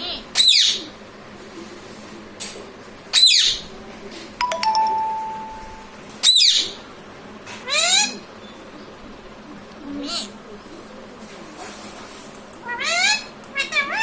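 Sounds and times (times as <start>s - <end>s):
parrot screeching: 0.0s - 0.9s, 6.2s - 6.8s, 12.6s - 14.0s
bell-like ding: 4.4s - 5.9s.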